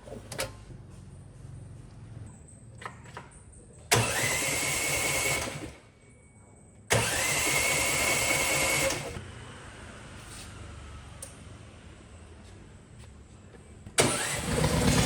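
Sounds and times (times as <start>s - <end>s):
small motor whining: 6.9s - 9.2s, 14.0s - 15.0s.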